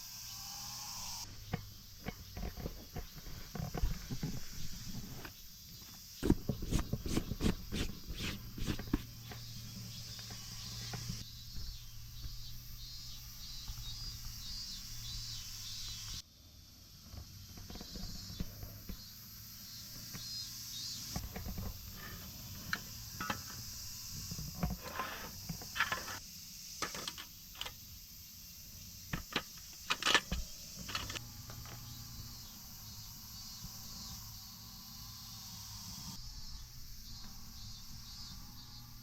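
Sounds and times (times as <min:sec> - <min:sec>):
insects chirring: 0:00.0 - 0:39.0.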